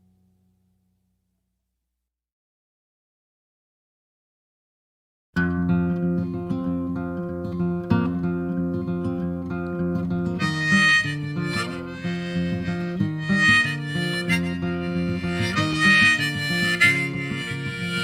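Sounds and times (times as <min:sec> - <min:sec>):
acoustic guitar: 0:05.4 - 0:18.0
harmonica playing phrases: 0:10.4 - 0:18.0.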